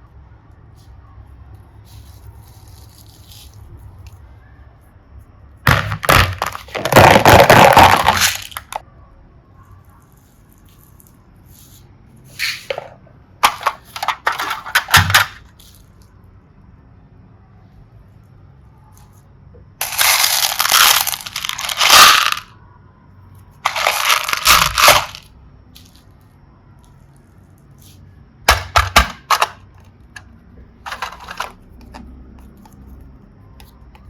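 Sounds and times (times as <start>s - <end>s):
eggs cracking: 5.7s - 8.8s
eggs crunching: 5.7s - 8.8s, 19.8s - 22.5s, 23.7s - 25.2s.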